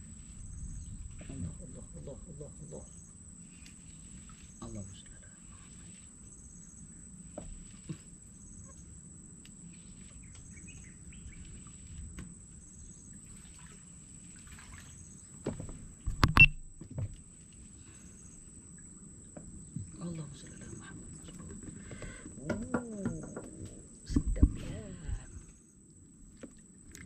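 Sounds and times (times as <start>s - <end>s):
cricket chirps: 0.0s - 27.0s
insects trilling: 0.0s - 27.0s
sharp knocks and thumps: 15.4s - 17.2s, 21.4s - 24.9s.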